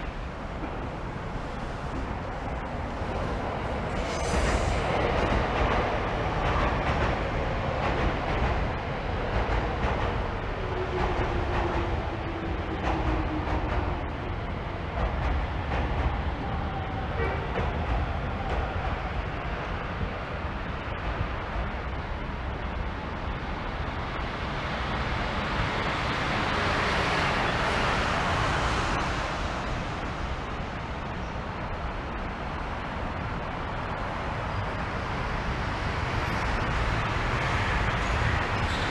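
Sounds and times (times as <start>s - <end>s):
road traffic rush: 0.0s - 9.4s, 24.7s - 38.9s.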